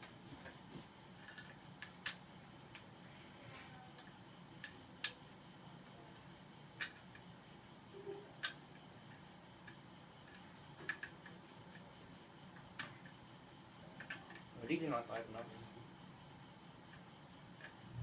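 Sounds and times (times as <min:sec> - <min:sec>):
fan blades clicking: 0:00.0 - 0:02.9, 0:08.4 - 0:13.2, 0:13.9 - 0:15.6, 0:16.8 - 0:18.0
ceiling fan humming: 0:00.0 - 0:18.0.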